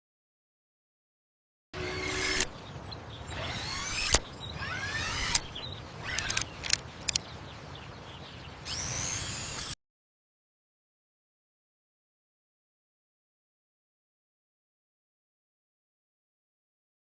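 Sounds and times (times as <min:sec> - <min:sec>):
mechanical whirring sweeping in pitch: 0:01.8 - 0:02.5, 0:03.3 - 0:06.4, 0:08.7 - 0:09.8
sharp mechanical clicks and clanks: 0:01.8 - 0:02.5, 0:03.4 - 0:07.3.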